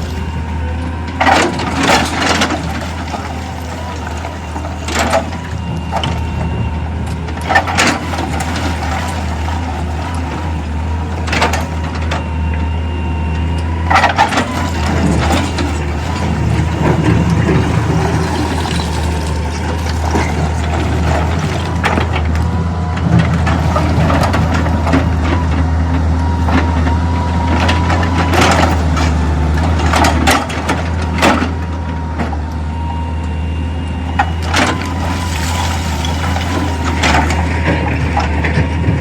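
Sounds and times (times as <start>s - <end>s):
engine low drone: 0.0s - 39.0s.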